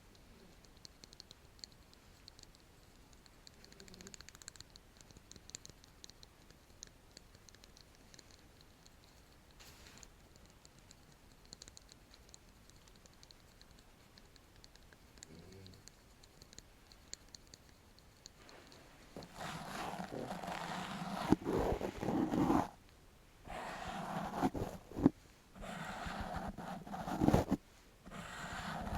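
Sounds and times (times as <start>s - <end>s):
paint brush brushing on microphone: 18.4s - 22.8s, 23.5s - 28.9s.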